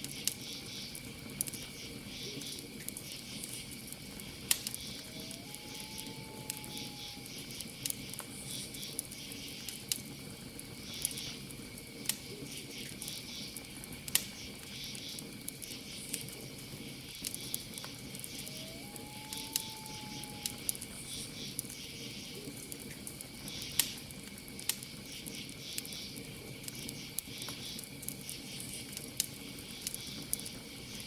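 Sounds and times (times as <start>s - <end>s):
campfire crackling and popping: 0.0s - 31.0s
cricket trill: 0.0s - 31.0s
owl hooting: 4.8s - 7.6s, 18.2s - 20.8s.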